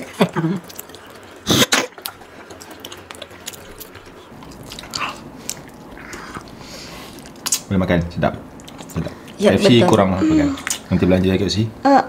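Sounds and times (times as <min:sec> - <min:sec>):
soft chewing: 0:00.0 - 0:07.7, 0:08.5 - 0:10.0.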